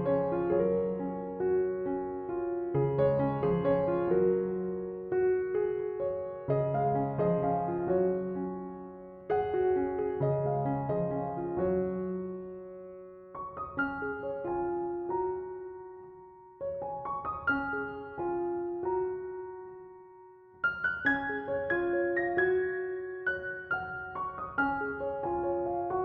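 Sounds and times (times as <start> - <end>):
gentle piano music: 0.0 - 26.0.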